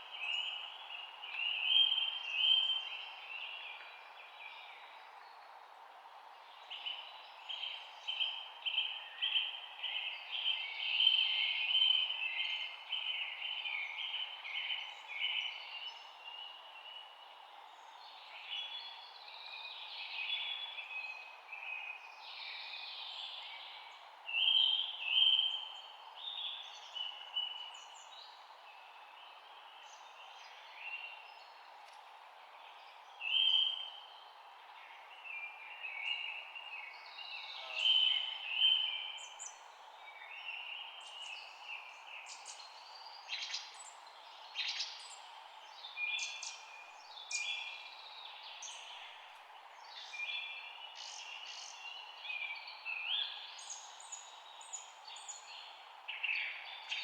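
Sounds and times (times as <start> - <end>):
songbirds chirping and singing: 35.4 - 57.0.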